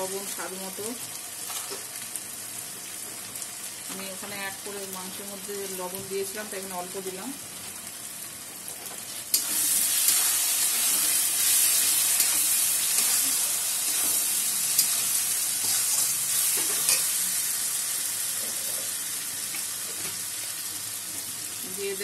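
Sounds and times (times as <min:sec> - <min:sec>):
masala sizzling in oil: 0:00.0 - 0:22.0
metal spatula stirring: 0:09.3 - 0:17.1.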